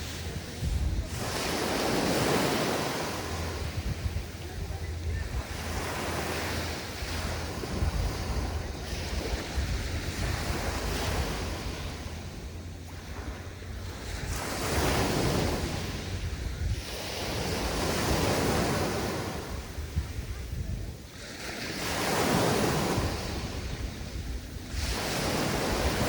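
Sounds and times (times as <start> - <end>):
waves breaking on beach: 0.0 - 26.0
wind rumble on microphone: 0.0 - 26.0.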